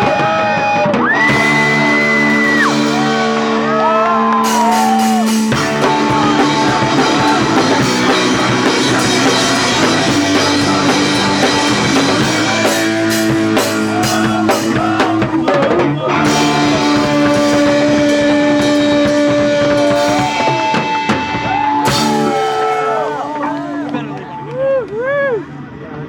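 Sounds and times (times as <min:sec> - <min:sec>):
punk rock band playing: 0:00.0 - 0:24.7
held electric guitar notes: 0:00.0 - 0:25.8
hard drum hits: 0:04.5 - 0:15.7, 0:16.3 - 0:24.3.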